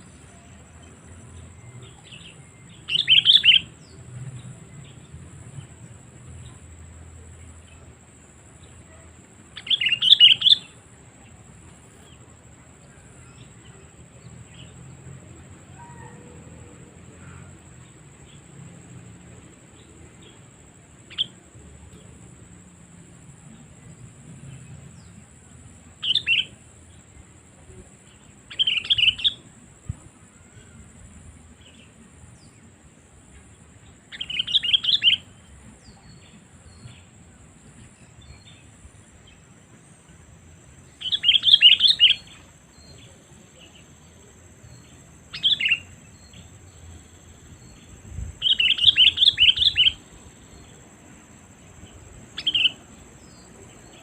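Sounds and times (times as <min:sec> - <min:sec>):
bird chattering calls: 0:48.4 - 0:50.0.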